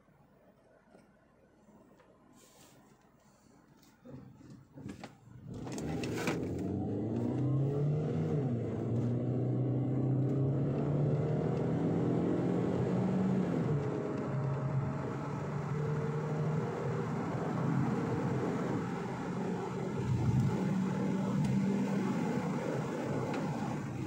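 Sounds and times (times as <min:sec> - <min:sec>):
car engine accelerating hard: 0:05.4 - 0:24.0.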